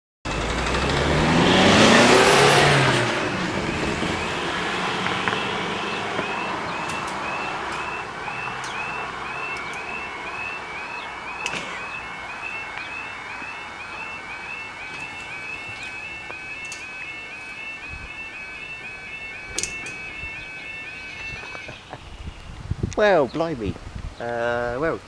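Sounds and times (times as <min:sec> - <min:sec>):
car driving past: 0:00.3 - 0:13.6
crossing alarm chirping: 0:00.3 - 0:22.5.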